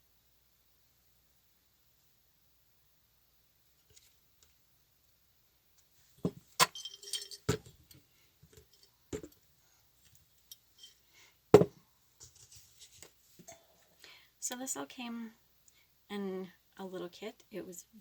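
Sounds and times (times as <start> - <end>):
light jingling clinks: 6.6 - 7.6, 10.5 - 11.1
hard objects knocking on table: 11.6 - 11.8.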